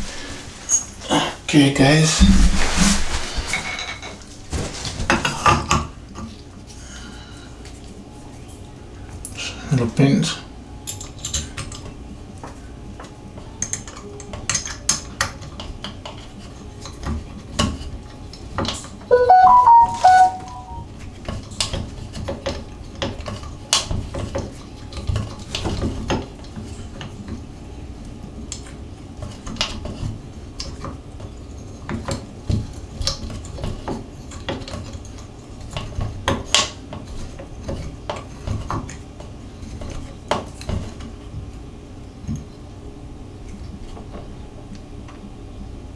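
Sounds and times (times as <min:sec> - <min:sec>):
brief loud squeak: 0:19.1 - 0:20.8.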